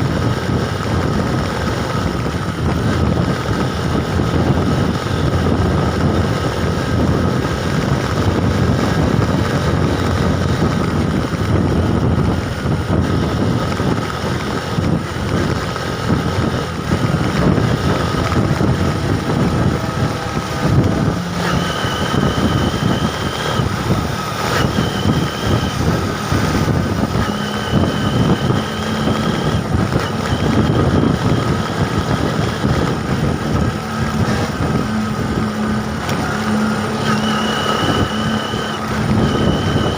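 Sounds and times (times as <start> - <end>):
road and vehicle noise: 0.0 - 39.9
wind buffeting microphone: 0.0 - 39.9
steady high tones: 18.0 - 31.8.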